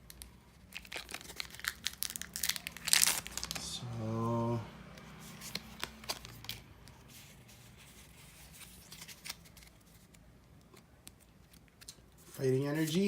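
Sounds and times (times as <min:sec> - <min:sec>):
foil pack and cards rustling: 0:00.0 - 0:03.7, 0:05.3 - 0:10.2.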